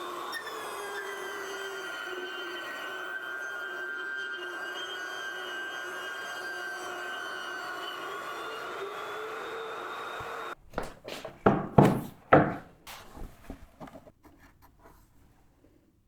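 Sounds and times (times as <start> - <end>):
wooden knocks and clatters: 10.7 - 14.6.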